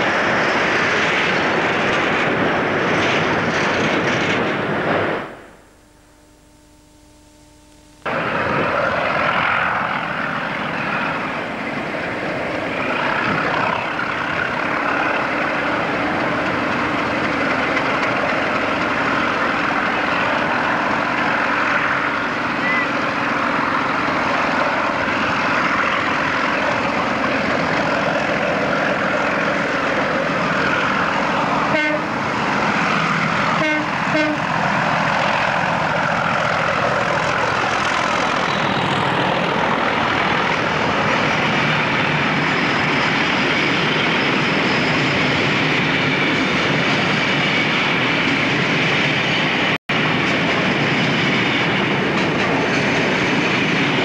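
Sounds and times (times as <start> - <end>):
freight train wheels clattering: 10.2 - 47.4, 50.0 - 54.0
train horn toots: 31.7 - 32.2, 33.5 - 34.6.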